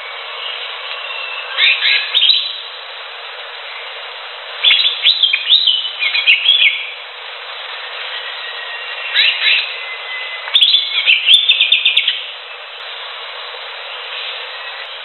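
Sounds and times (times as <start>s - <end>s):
background hiss: 0.0s - 15.0s
bird singing whistled notes: 0.1s - 2.7s, 4.6s - 7.0s, 7.8s - 12.7s.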